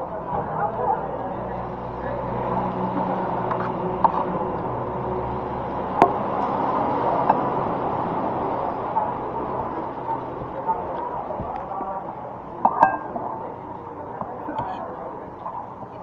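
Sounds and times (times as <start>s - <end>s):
restaurant background noise: 0.0s - 16.0s
tableware knocks and clinks: 12.7s - 13.2s.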